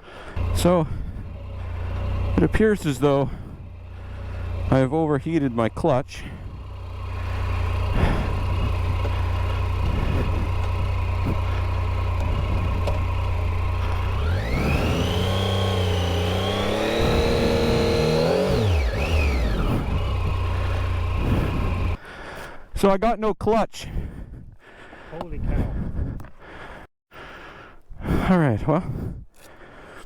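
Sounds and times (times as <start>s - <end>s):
motorcycle engine idling and revving: 0.0s - 22.0s.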